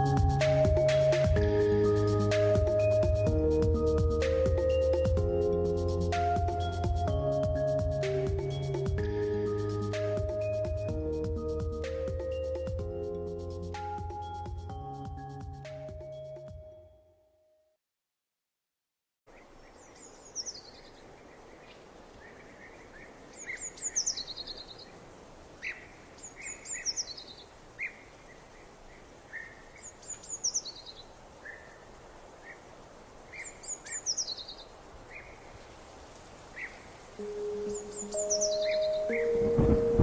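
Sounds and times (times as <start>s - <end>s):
outdoor hiss: 0.0s - 14.6s, 19.3s - 40.0s
soft low bird chirps: 36.6s - 39.9s
songbird high falling phrase: 37.2s - 40.0s.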